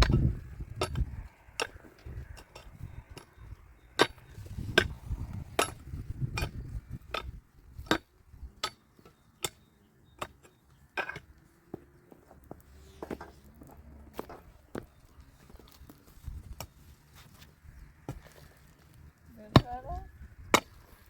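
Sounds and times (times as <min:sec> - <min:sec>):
low rumbling handling noise: 0:00.0 - 0:07.9.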